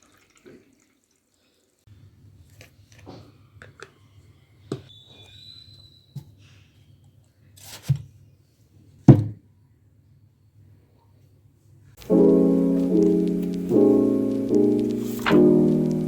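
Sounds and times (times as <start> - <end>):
piano music with sustained chords: 12.0 - 16.0.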